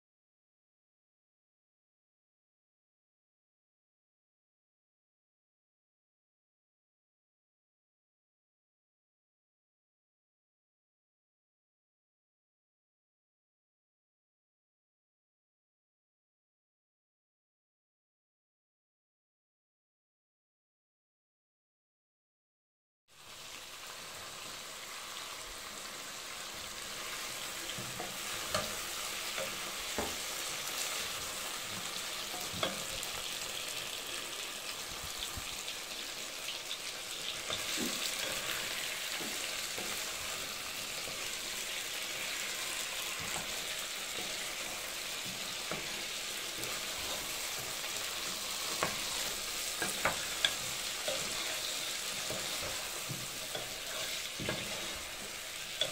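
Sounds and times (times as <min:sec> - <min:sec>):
meat and potatoes sizzling: 0:23.1 - 0:55.9.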